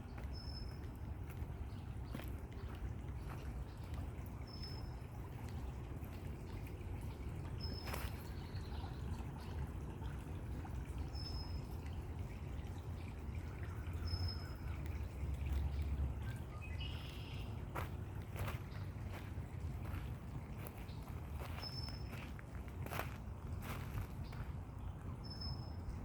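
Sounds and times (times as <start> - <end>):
water pouring and trickling: 0.0 - 26.0
bird chirps: 16.2 - 17.5.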